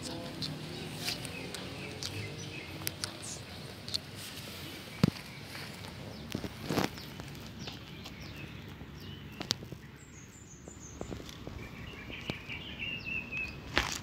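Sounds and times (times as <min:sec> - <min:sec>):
rustling: 0:00.0 - 0:08.8
bird chirping: 0:00.0 - 0:13.7.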